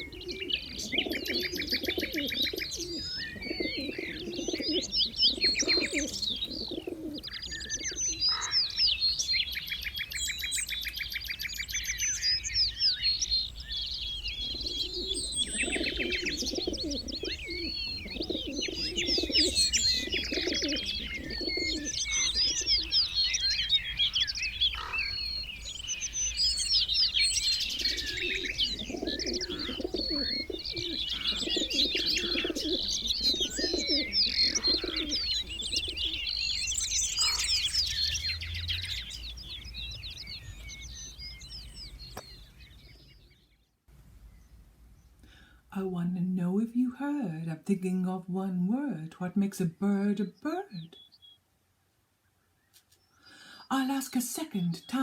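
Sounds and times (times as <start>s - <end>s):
low cooing calls: 0.0s - 43.2s
birds chirping and trilling: 0.0s - 55.0s.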